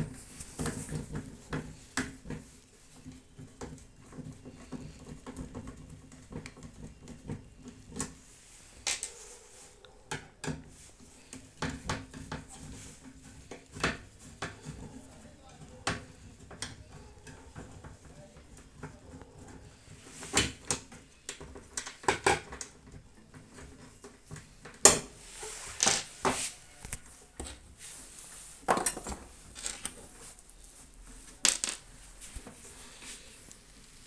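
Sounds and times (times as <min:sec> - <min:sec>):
metal tools clinking: 0:28.8 - 0:30.1.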